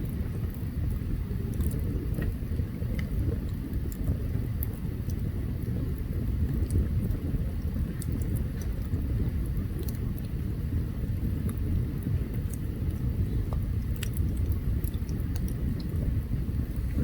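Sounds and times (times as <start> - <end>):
campfire low rumble: 0.0 - 17.0
wood crackles and pops: 11.4 - 16.2.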